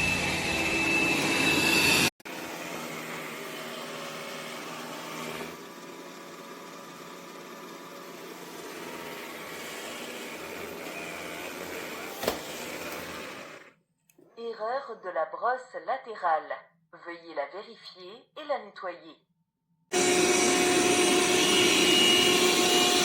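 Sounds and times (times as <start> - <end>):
robot vacuum whirring: 0.0 - 13.8, 19.9 - 23.0.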